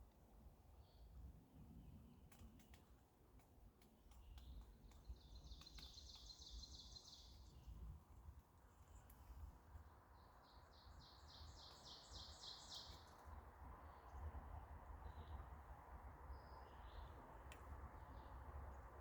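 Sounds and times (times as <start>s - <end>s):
songbird singing: 4.1s - 7.9s, 10.1s - 19.0s.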